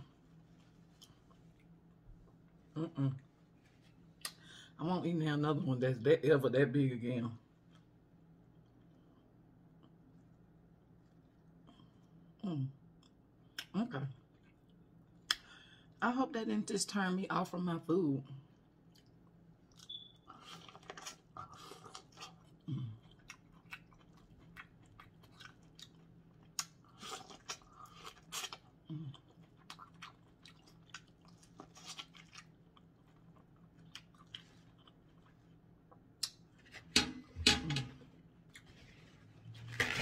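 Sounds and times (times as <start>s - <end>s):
chewing corn on the cob: 18.9s - 36.4s.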